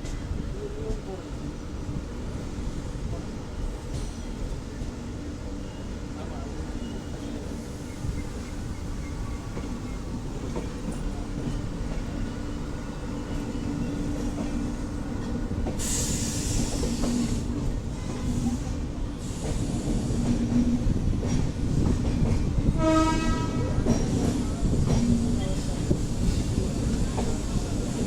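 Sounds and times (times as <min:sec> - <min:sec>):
train wheels rumbling: 0:00.0 - 0:28.0
burst of hiss: 0:15.8 - 0:17.5.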